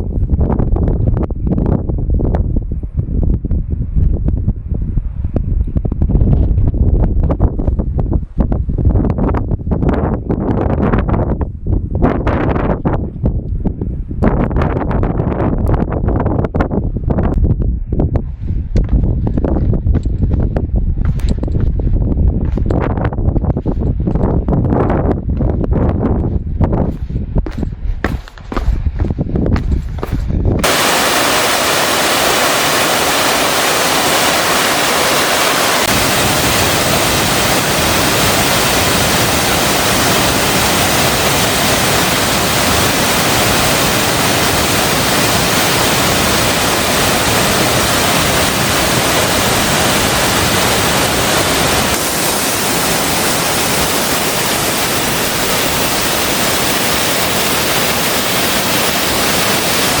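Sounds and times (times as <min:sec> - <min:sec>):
waterfall rushing: 0:30.6 - 1:00.0.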